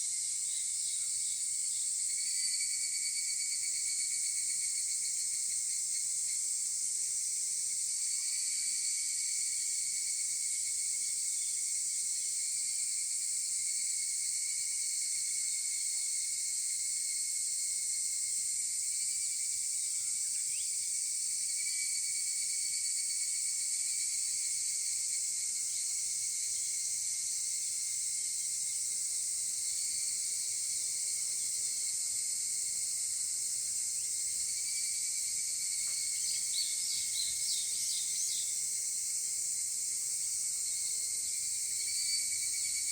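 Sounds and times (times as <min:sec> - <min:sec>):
cicadas shrill drone: 0:00.2 - 0:06.4, 0:19.0 - 0:42.9.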